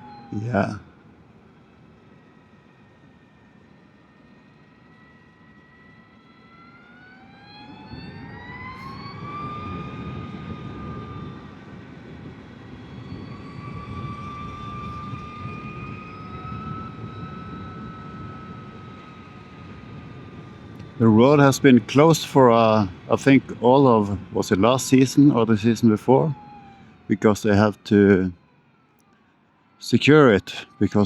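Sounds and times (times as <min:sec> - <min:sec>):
wind and road noise: 0:00.0 - 0:31.0.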